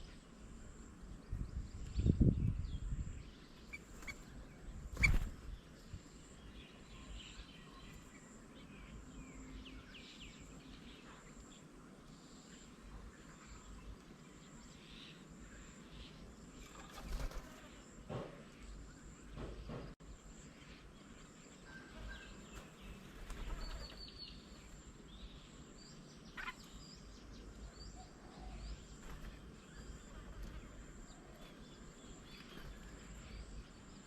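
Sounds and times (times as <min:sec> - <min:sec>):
bird chirps and calls: 0:01.8 - 0:05.5, 0:25.3 - 0:30.2.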